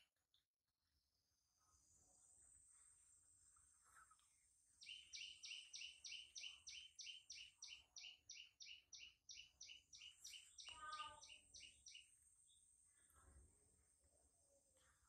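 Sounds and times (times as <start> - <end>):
bird chirping: 3.8 - 13.1.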